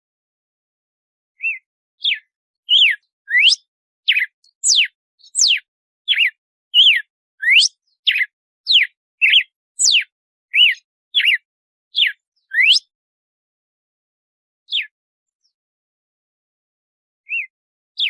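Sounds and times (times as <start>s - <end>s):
bird singing whistled notes: 1.4s - 13.0s, 14.7s - 15.6s, 17.2s - 17.6s.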